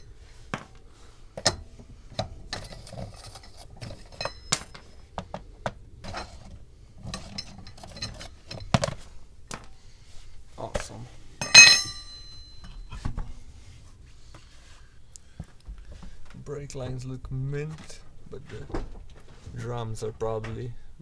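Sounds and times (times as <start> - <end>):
hand tools clinking on metal: 2.5 - 5.0, 7.0 - 8.8, 11.4 - 12.8.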